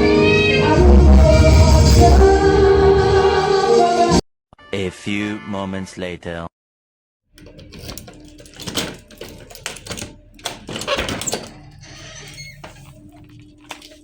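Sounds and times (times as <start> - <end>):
clicks knocks and rattles: 7.4 - 14.0.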